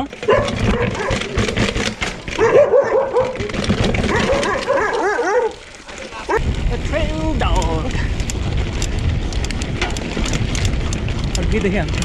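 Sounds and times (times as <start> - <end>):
clatter of knocks: 0.0 - 5.1
dog barking and yipping: 0.2 - 1.6, 2.3 - 5.7.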